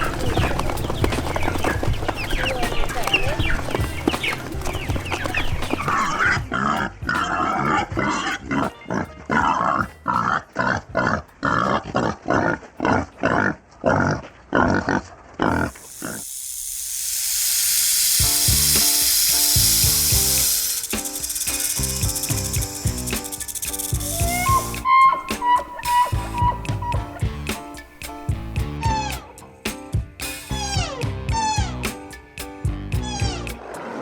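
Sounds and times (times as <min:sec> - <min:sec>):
pig grunting: 0:05.9 - 0:16.2
steady hiss: 0:15.5 - 0:24.9, 0:25.6 - 0:28.5.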